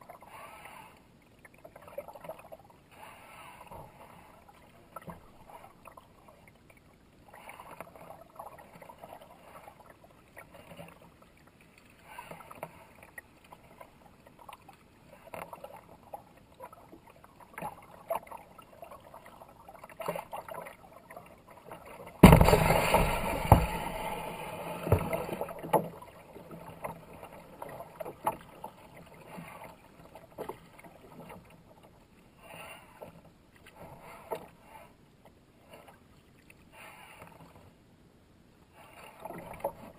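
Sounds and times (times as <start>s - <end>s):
paddle strokes splashing in water: 0.1s - 34.9s
sudden loud burst of noise: 22.2s - 25.1s.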